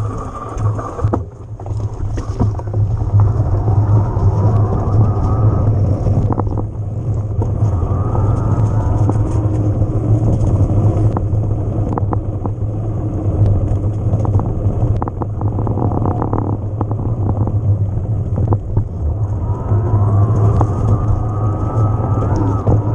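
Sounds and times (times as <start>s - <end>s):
bike rattles and clicks: 0.0s - 22.9s
tyres and wind rumble: 0.0s - 22.9s.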